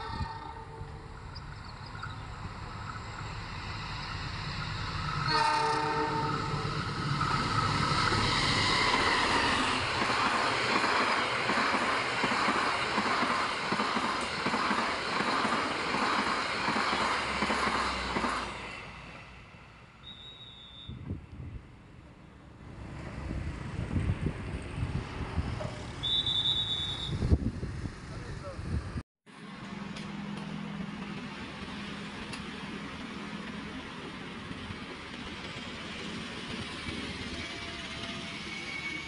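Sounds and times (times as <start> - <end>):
train rumble: 0.0 - 20.0, 21.0 - 26.0, 27.2 - 39.0
train horn blast: 5.2 - 6.7.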